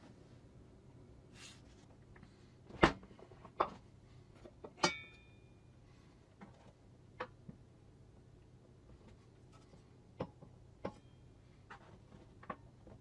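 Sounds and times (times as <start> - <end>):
metallic ringing knock: 4.8 - 5.4.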